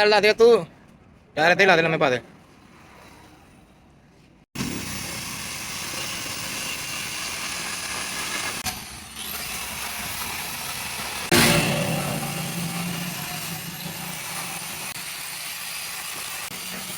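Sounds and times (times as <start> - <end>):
engine running: 11.3 - 15.2.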